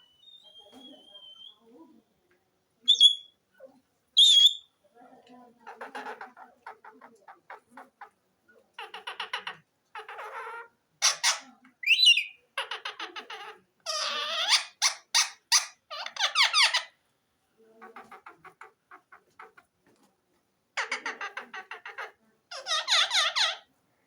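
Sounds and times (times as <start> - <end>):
parakeet chattering and squawking: 2.9 - 3.3, 4.2 - 4.7, 5.6 - 8.2, 8.8 - 17.0, 17.8 - 19.6, 20.8 - 23.7.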